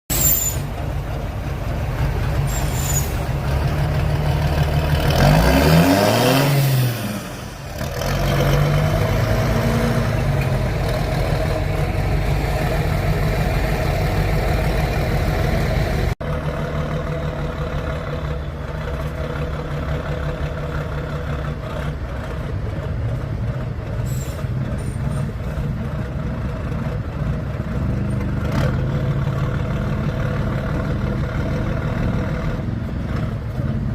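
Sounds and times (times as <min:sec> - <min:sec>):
heavy truck engine revving: 0:00.6 - 0:33.9.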